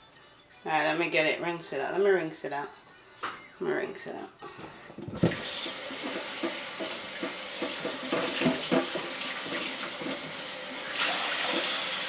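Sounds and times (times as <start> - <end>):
knocks in a sink: 5.1 - 10.4
tap running into a sink: 5.2 - 12.0.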